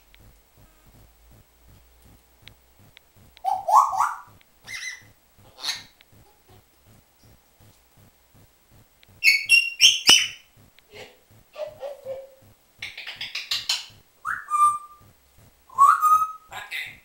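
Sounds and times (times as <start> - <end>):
faint even ticking: 0.0 - 17.0
parrot whistle: 3.4 - 5.9, 9.2 - 10.5, 13.7 - 15.0, 15.7 - 16.5
parrot calling: 3.4 - 6.0, 9.2 - 10.5, 11.6 - 15.0.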